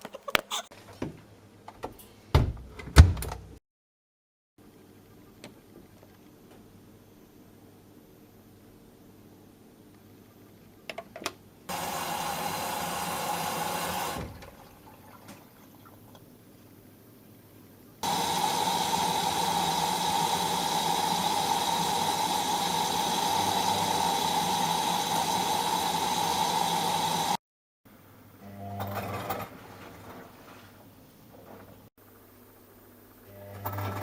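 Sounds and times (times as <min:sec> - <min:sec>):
washing machine filling with water: 0:11.7 - 0:16.2, 0:18.0 - 0:27.4.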